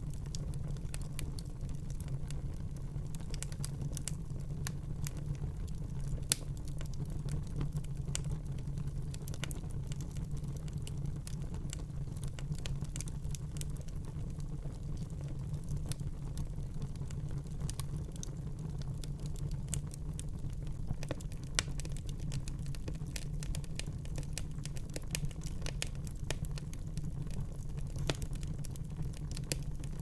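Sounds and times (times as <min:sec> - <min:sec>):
fire crackling and popping: 0:00.0 - 0:30.0
low rumble of flames: 0:00.0 - 0:30.0.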